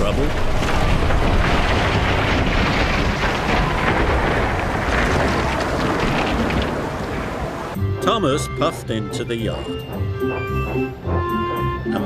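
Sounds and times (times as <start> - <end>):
rain falling: 0.0 - 7.8
steady low rumble: 0.0 - 7.8.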